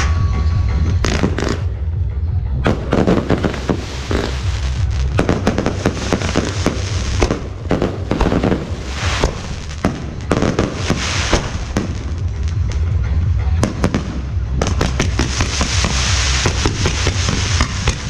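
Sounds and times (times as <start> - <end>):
low rumble: 0.0 - 18.0
fireworks bangs and cracks: 0.9 - 1.8, 2.6 - 13.0, 13.6 - 18.0
crackling hiss: 2.7 - 12.6, 14.6 - 18.0.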